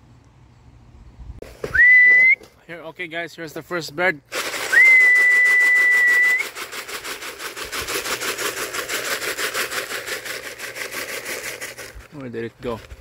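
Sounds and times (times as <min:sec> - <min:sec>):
person whistling long note: 0:01.7 - 0:02.4, 0:04.7 - 0:06.5
fast rustling pulse: 0:04.3 - 0:12.1.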